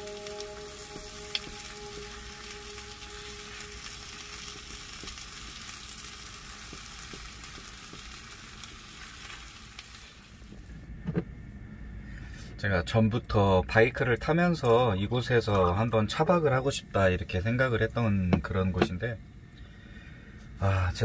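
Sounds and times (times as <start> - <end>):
food sizzling in a skillet: 0.0 - 10.5.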